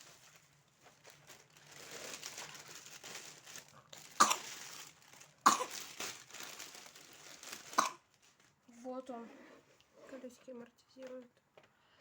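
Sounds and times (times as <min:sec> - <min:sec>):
plastic packaging rustling: 0:00.0 - 0:08.6
person coughing: 0:04.2 - 0:04.4, 0:05.5 - 0:05.8.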